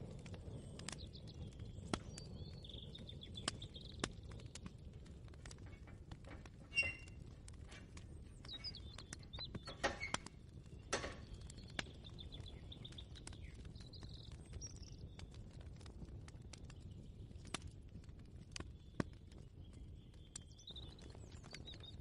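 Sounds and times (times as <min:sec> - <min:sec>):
birds chirping: 0:00.0 - 0:04.9, 0:05.5 - 0:15.4, 0:18.6 - 0:22.0
light clicks and knocks: 0:05.4 - 0:11.5.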